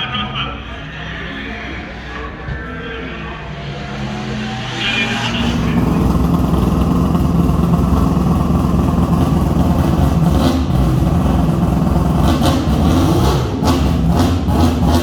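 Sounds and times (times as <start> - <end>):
rotary engine running at low revs: 3.6 - 15.0.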